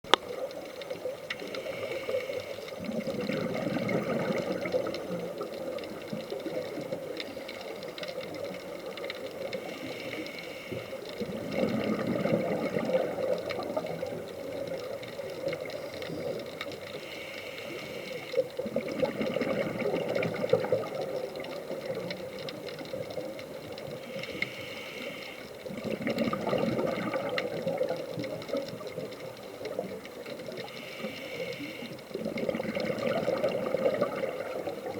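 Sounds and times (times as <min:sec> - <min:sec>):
regulator hissing inhale: 0:01.3 - 0:02.8, 0:09.5 - 0:11.2, 0:15.8 - 0:18.5, 0:24.0 - 0:25.6, 0:30.6 - 0:32.1
bubbling exhale: 0:01.3 - 0:07.6, 0:09.4 - 0:22.0, 0:23.8 - 0:29.0, 0:29.7 - 0:34.9.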